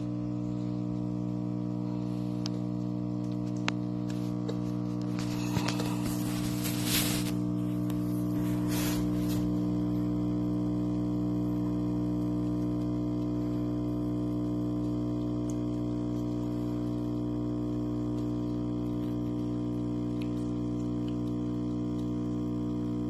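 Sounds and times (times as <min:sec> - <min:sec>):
steady electrical hum: 0:00.0 - 0:23.0
noisy rustle: 0:05.3 - 0:09.5.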